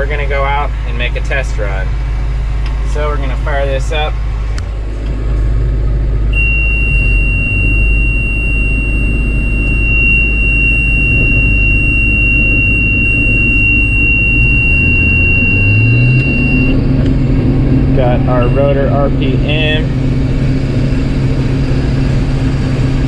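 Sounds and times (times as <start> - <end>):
combine engine running: 0.0 - 23.0
high-pitched warning tone: 6.3 - 17.0, 17.7 - 20.0.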